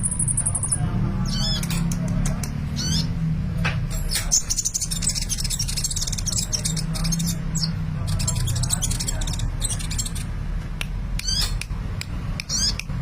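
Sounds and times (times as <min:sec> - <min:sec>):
sunbird twittering song: 0:00.0 - 0:03.2, 0:04.0 - 0:10.4.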